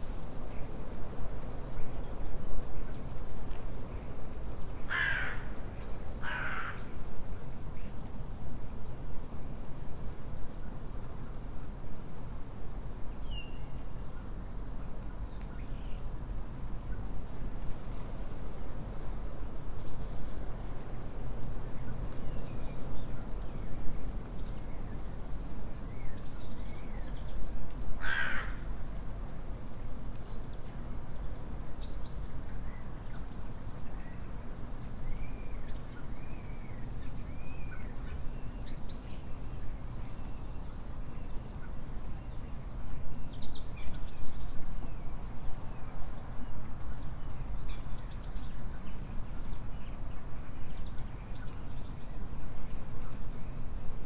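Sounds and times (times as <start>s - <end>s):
songbirds chirping: 10.5s - 54.0s
harsh cawing call: 28.0s - 28.6s.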